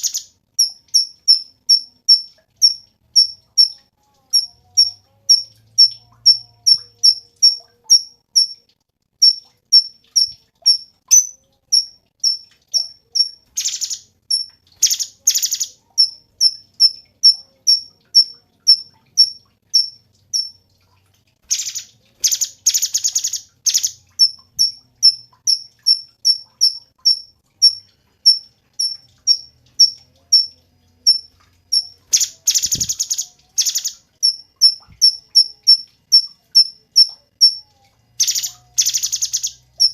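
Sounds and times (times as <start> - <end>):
bird chipping: 0.0 - 1.9, 9.2 - 20.5, 37.4 - 39.9
buzzy rattling bird trills: 0.0 - 8.6, 9.2 - 20.6, 21.5 - 39.9.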